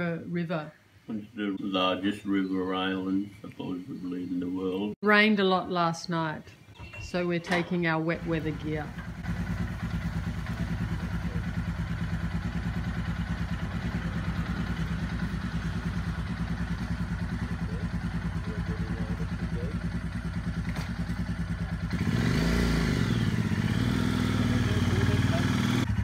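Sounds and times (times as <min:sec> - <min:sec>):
motorcycle engine idling: 0:08.1 - 0:26.0.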